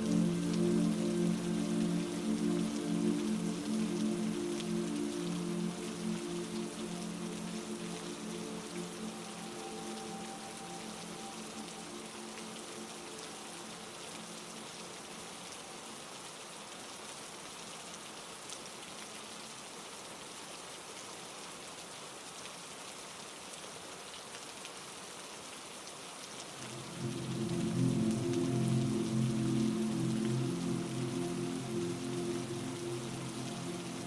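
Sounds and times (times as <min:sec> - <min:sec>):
heavy rain falling: 0:00.0 - 0:34.0
low droning tones: 0:26.6 - 0:34.0.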